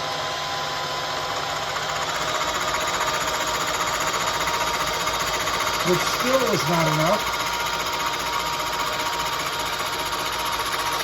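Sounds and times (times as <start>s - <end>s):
milling machine cutting metal: 0.0s - 11.0s
fast even cutter chatter: 5.8s - 7.4s.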